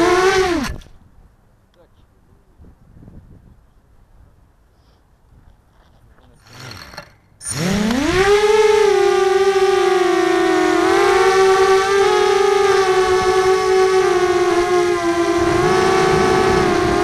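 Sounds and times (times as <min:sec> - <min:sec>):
drone motors whining: 0:00.0 - 0:00.9, 0:06.4 - 0:17.0.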